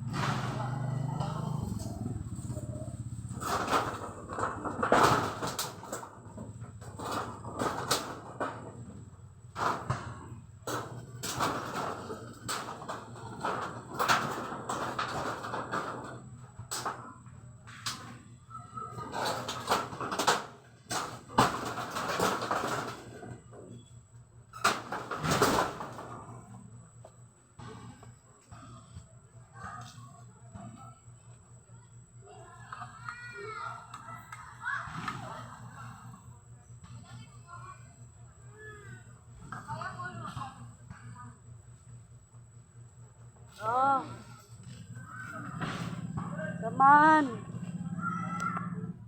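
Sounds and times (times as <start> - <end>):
rustling and scraping: 0.0 - 18.3, 43.3 - 47.8.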